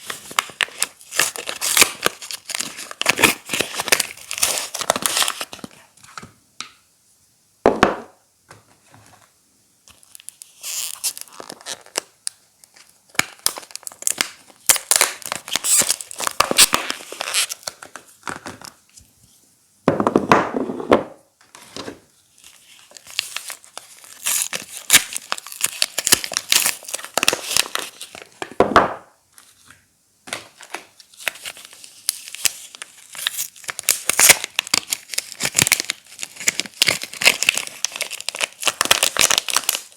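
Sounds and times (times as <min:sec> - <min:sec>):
wrappers crinkling and tearing: 0:00.0 - 0:05.8, 0:09.9 - 0:18.4, 0:22.3 - 0:28.4, 0:30.6 - 0:39.9.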